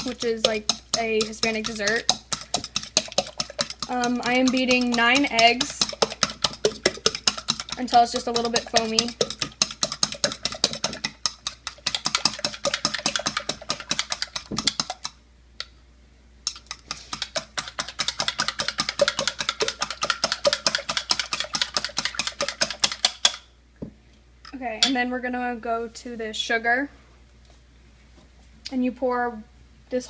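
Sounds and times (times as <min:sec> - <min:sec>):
whisk clicking against bowl: 0:00.0 - 0:15.2, 0:16.5 - 0:23.4.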